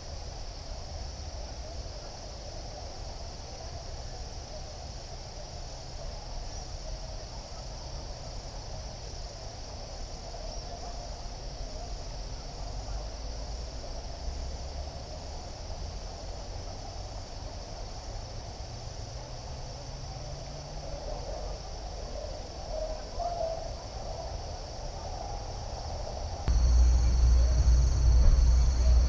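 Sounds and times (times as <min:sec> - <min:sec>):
crickets chirping: 0:00.0 - 0:29.0
low rumble: 0:26.5 - 0:29.0.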